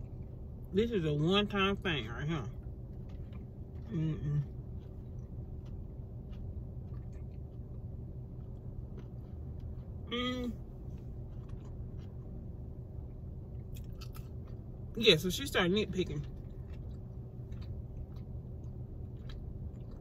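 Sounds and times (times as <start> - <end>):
chewing french fries: 0.0 - 20.0
steady low hum: 0.0 - 20.0
person humming: 3.9 - 4.5, 10.1 - 10.6.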